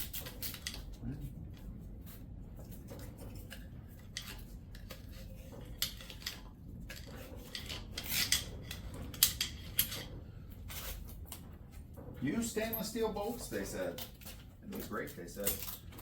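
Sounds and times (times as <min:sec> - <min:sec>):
metal tools clinking: 0:03.2 - 0:11.0, 0:12.3 - 0:16.0.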